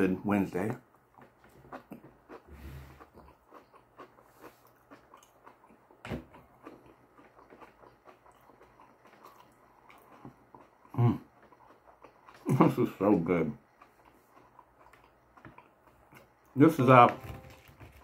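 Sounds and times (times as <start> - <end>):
chewing with wet mouth clicks: 3.0 - 12.7, 13.6 - 16.6.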